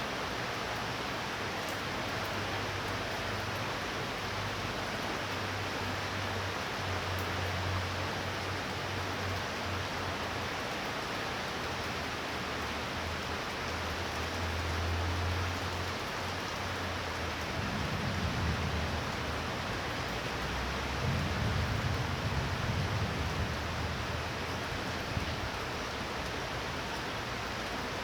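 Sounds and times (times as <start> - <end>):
low thunder rumble: 17.5 - 25.6.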